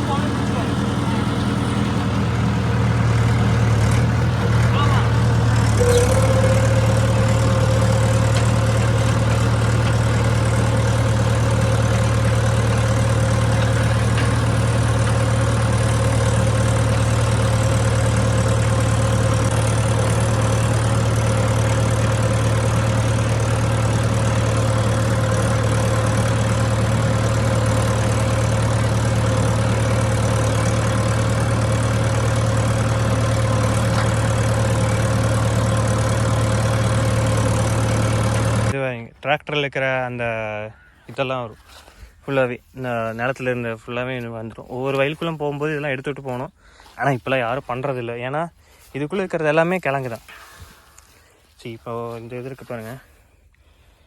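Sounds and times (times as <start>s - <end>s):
tractor engine running: 0.0s - 40.5s.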